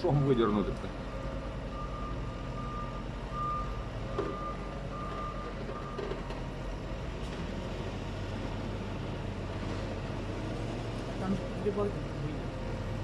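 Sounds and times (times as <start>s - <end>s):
reversing alarm beeping: 0.0s - 0.7s, 1.7s - 6.3s
diesel engine droning: 0.0s - 13.0s.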